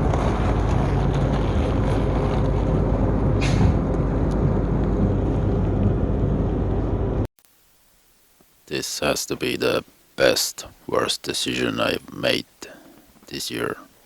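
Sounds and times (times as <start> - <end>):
truck engine running: 0.0 - 7.3.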